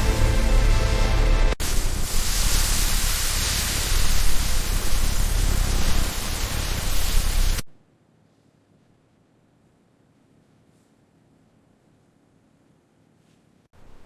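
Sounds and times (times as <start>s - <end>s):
loud steady hissing: 0.0s - 7.8s.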